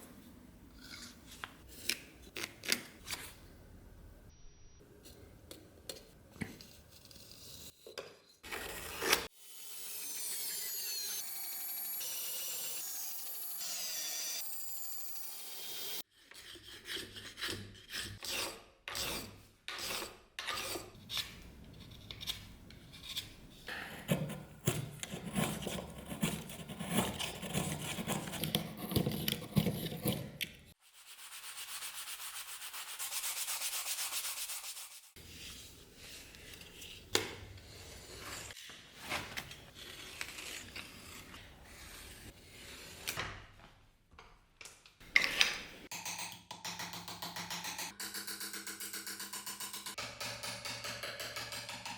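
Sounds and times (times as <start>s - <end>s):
wood being filed and sanded: 16.2s - 21.0s.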